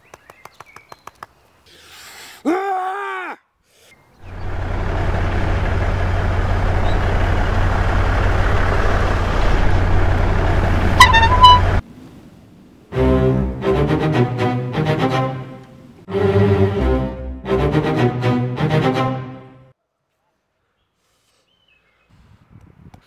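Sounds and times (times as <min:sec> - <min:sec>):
man yelling: 0:02.5 - 0:03.5
car engine running: 0:04.2 - 0:11.8
car horn toots: 0:10.9 - 0:11.8.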